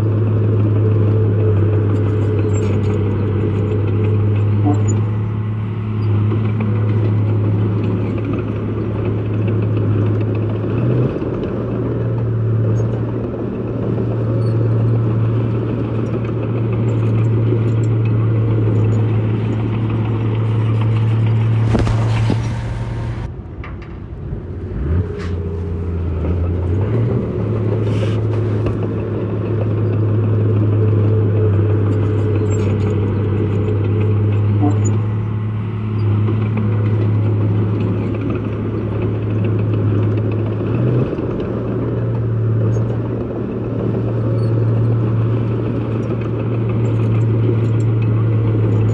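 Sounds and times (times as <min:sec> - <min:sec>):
heavy diesel engine running: 0:00.0 - 0:48.9
brief noisy burst: 0:21.6 - 0:23.3.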